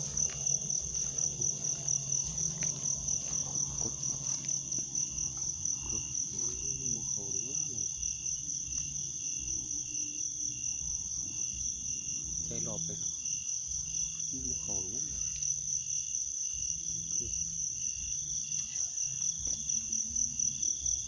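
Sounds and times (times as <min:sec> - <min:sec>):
low steady hum: 0:00.0 - 0:07.6
crickets trilling: 0:00.0 - 0:21.0.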